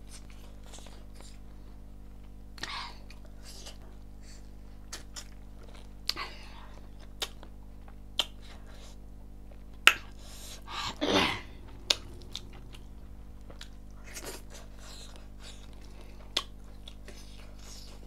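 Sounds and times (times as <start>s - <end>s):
hum falling in pitch: 10.4s - 14.8s.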